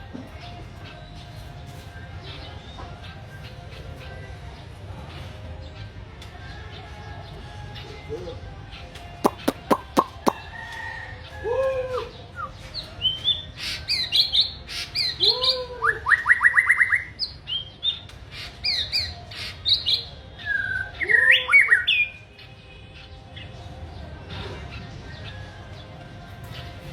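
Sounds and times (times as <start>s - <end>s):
songbird singing whistled notes: 5.7s - 23.6s.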